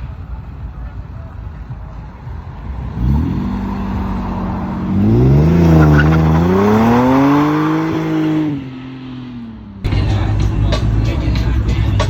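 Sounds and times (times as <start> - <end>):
car engine revving hard: 2.7 - 11.4.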